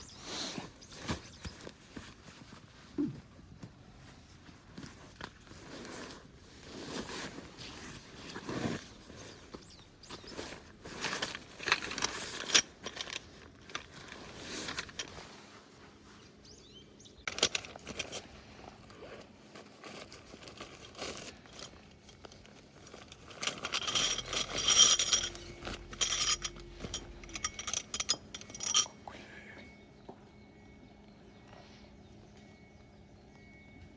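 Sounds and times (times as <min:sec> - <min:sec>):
rustling: 0:00.3 - 0:16.3, 0:17.3 - 0:28.9
objects clinking and knocking: 0:10.2 - 0:15.2, 0:17.3 - 0:18.2, 0:19.8 - 0:29.0.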